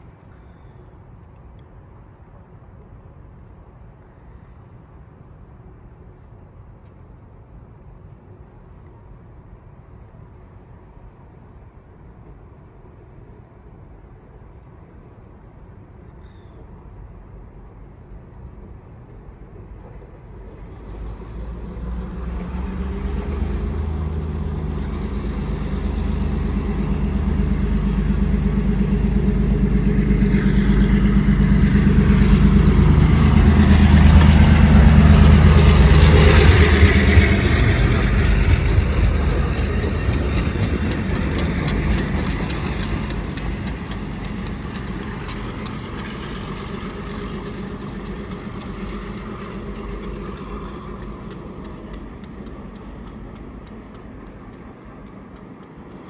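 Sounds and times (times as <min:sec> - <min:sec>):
train passing rumble: 0:19.6 - 0:56.0
wheels clicking over rail joints: 0:20.9 - 0:56.0.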